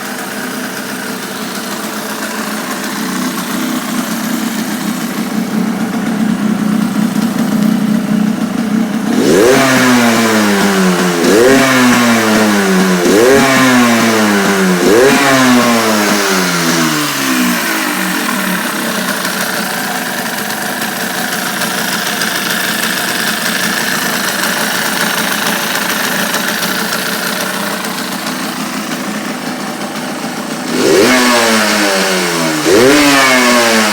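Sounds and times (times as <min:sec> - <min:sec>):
two-stroke engine idling and revving: 0:00.0 - 0:33.9.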